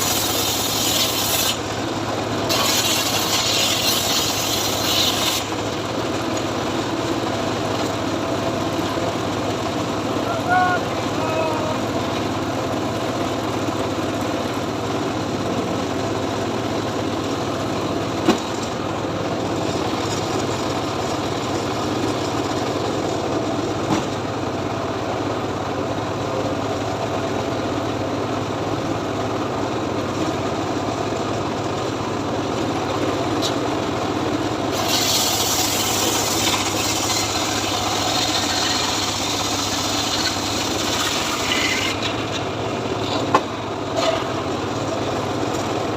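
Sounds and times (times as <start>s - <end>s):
saw blade rasping into wood: 0.0s - 1.6s, 2.5s - 5.5s, 34.8s - 42.2s
engine-driven log saw running: 0.0s - 45.9s.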